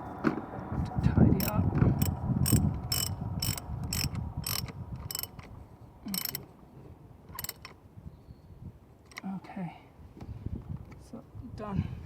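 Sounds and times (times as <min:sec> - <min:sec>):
low handling rumble: 0:00.0 - 0:07.7
sharp clicks of tools: 0:01.4 - 0:05.5, 0:06.1 - 0:06.5, 0:07.3 - 0:07.8.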